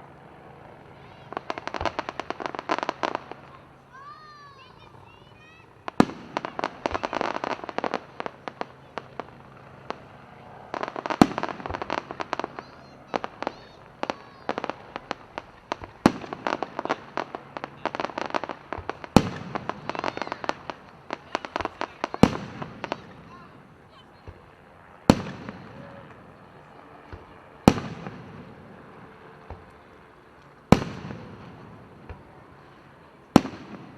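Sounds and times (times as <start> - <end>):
fireworks crackling and popping: 0.8 - 33.9
loud firework booms: 10.8 - 23.4, 24.2 - 26.0, 27.1 - 28.8, 30.7 - 32.4, 33.3 - 33.9.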